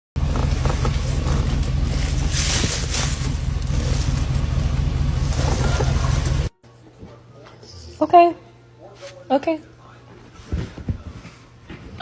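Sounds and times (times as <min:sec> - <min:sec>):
engine rumbling: 0:00.2 - 0:06.6.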